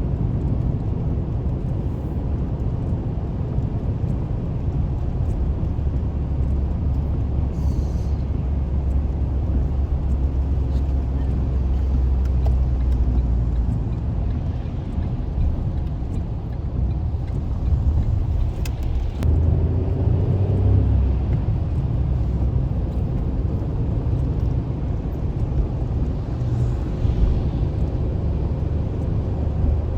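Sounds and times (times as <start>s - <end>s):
car engine and road rumble: 0.0s - 29.9s.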